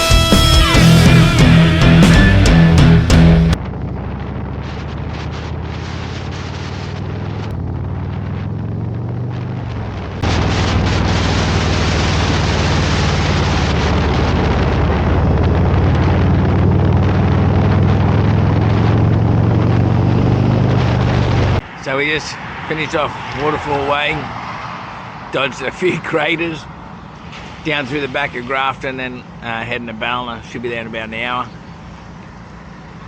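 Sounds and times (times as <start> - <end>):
motorcycle engine running: 0.0 - 21.7
wind rushing over microphone: 3.5 - 25.3.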